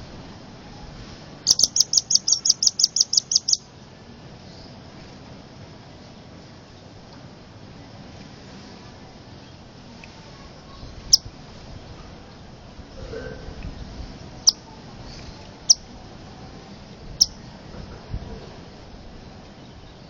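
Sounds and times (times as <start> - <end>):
bird giving sharp high calls: 1.5 - 3.6.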